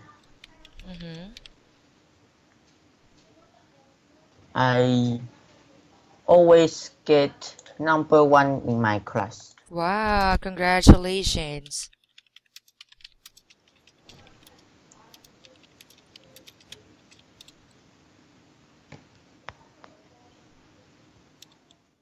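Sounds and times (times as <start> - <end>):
computer keyboard typing clicks: 0.2 - 1.5, 11.6 - 17.6, 21.4 - 21.8.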